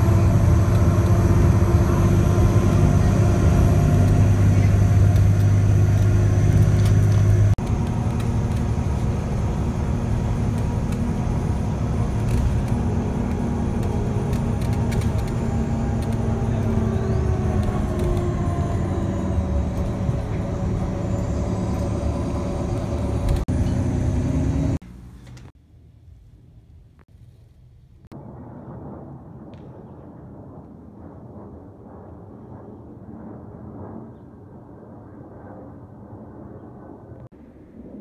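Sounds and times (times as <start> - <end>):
engine noise with pitched tones: 0.0 - 25.5.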